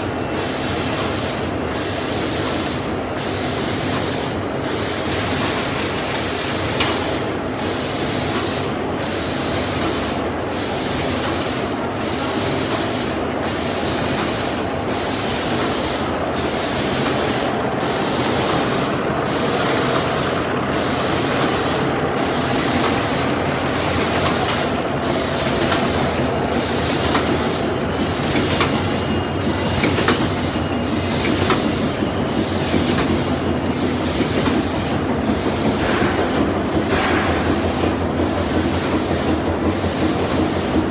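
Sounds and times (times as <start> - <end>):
production machine running: 0.0 - 40.9.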